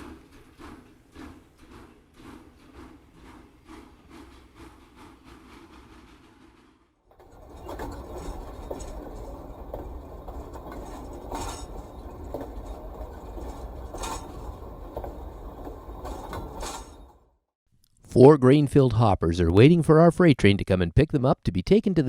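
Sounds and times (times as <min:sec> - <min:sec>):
model train rumbling on track: 0:00.0 - 0:17.3
wheels clicking over rail joints: 0:00.0 - 0:17.4.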